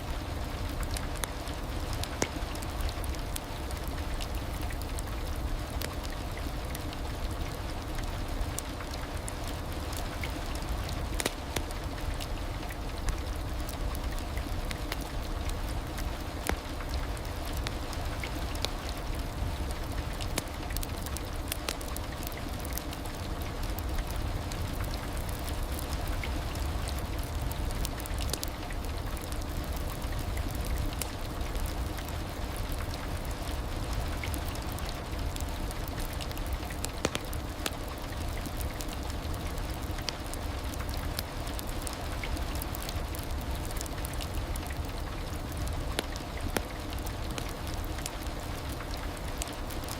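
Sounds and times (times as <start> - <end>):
heavy rain: 0.0 - 49.9.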